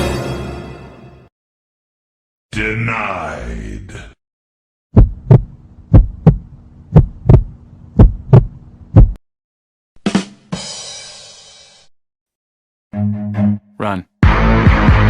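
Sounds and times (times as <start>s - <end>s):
heartbeat thumps: 4.9s - 9.2s.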